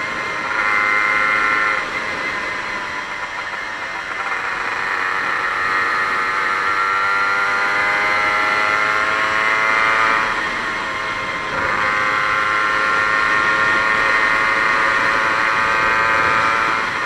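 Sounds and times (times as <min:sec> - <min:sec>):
two-stroke engine revving: 0:00.0 - 0:17.0.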